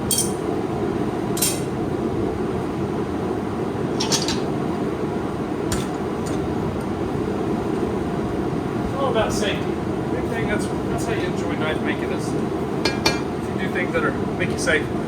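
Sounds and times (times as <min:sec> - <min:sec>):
steel tongs clinking on steel: 0:00.0 - 0:00.4, 0:01.4 - 0:01.7, 0:04.0 - 0:04.5, 0:05.7 - 0:06.9, 0:12.9 - 0:13.3.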